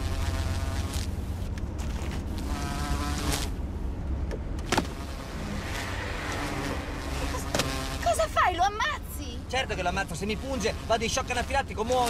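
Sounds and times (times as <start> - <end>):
whining buzz: 0.0 - 12.0
car engine running: 0.9 - 12.0.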